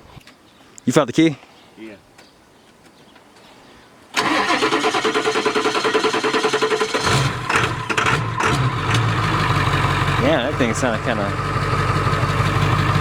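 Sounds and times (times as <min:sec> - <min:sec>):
truck engine cranking: 0:04.2 - 0:13.0
truck engine idling: 0:07.1 - 0:13.0.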